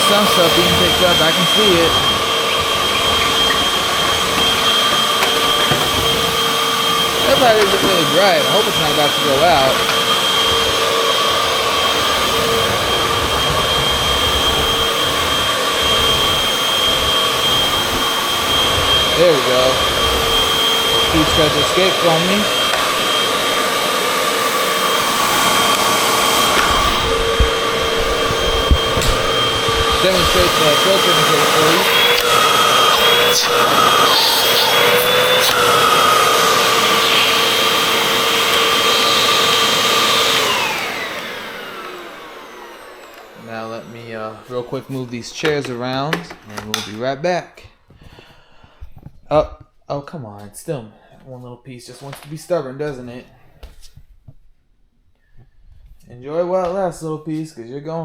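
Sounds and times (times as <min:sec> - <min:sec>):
vacuum cleaner running: 0:00.0 - 0:46.7.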